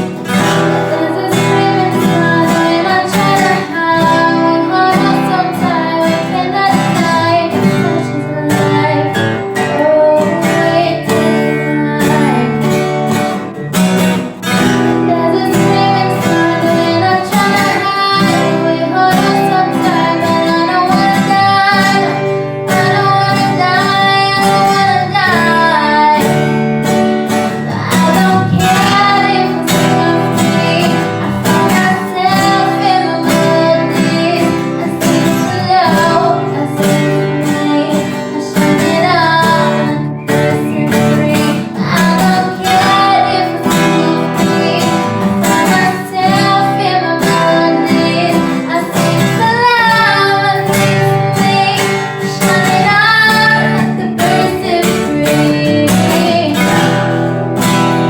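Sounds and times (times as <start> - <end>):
woman singing a pop ballad: 0.0 - 57.9
acoustic guitar: 0.0 - 58.0.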